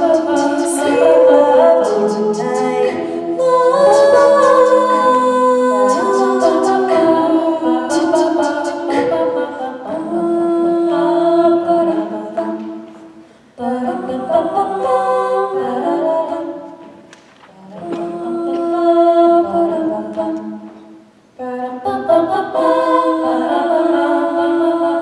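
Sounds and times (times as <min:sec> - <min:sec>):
vocal group singing in harmony: 0:00.0 - 0:25.0.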